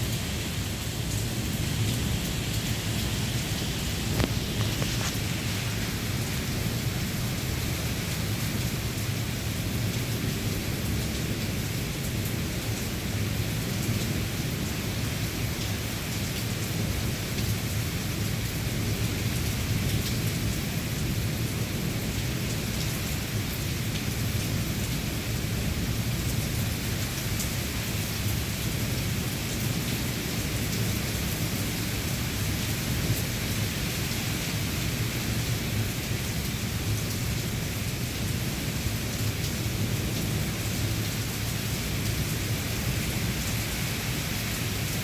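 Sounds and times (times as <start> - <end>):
steady rain hiss: 0.0 - 45.0
raindrop ticks: 4.0 - 5.3.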